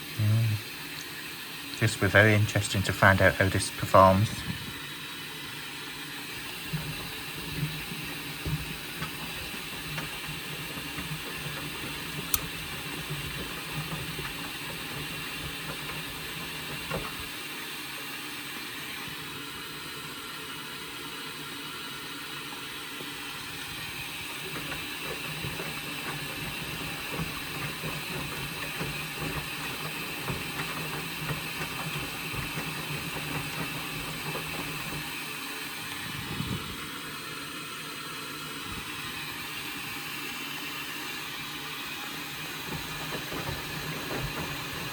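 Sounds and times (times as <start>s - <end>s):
washing machine humming: 0.0s - 44.9s.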